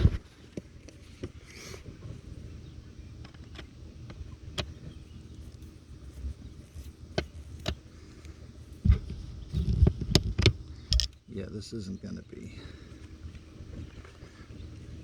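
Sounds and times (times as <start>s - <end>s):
low steady rumble: 0.0s - 15.0s
screwdriver clicks and taps: 10.1s - 11.2s.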